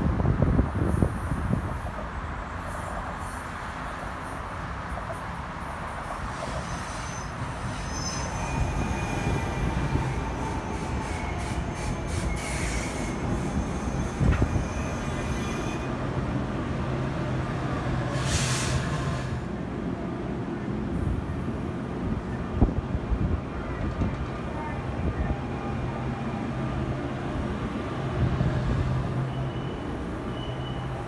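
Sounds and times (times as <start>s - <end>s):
low train hum: 0.0s - 31.0s
train wheels squealing: 4.2s - 16.0s, 29.1s - 31.0s
short hiss: 18.1s - 19.3s.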